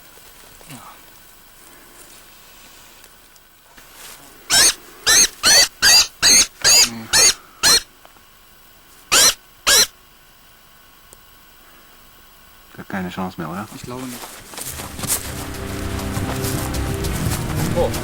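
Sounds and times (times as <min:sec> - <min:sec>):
small bird distress cries: 0:04.5 - 0:07.9, 0:09.1 - 0:09.9.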